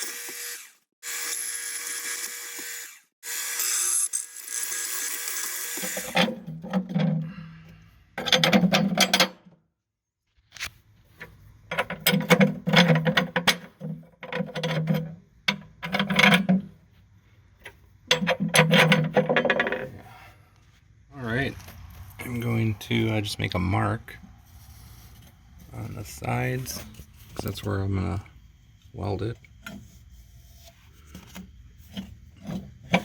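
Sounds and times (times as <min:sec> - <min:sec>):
power tool on steel: 0:00.0 - 0:06.4.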